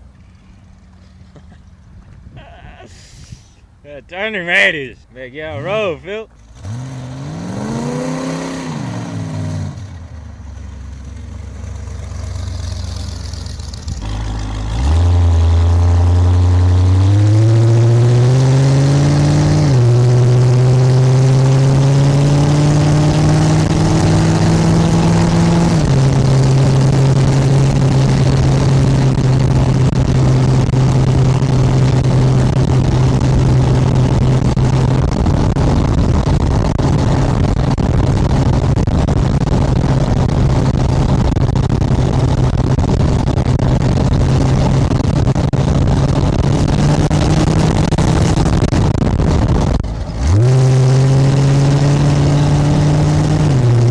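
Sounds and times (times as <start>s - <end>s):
engine rumbling and accelerating: 0.0s - 53.9s.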